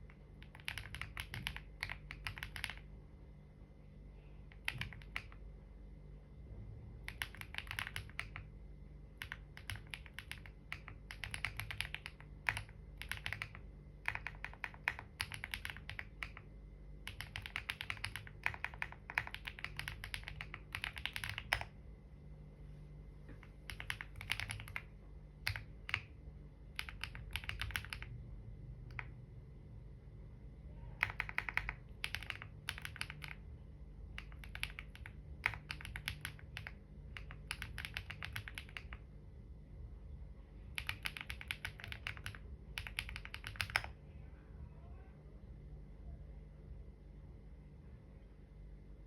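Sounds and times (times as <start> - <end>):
keyboard typing: 0.0 - 2.9, 4.4 - 5.5, 7.0 - 21.8, 23.3 - 28.2, 28.8 - 29.2, 30.8 - 39.1, 40.6 - 44.0
faint low hum: 0.0 - 49.0.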